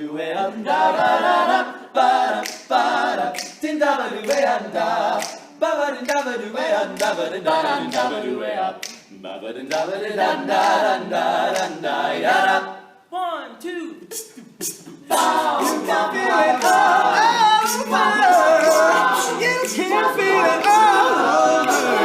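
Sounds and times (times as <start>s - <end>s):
men singing a cappella: 0.0s - 12.8s, 14.1s - 22.0s
vocal percussion hits: 14.1s - 22.0s.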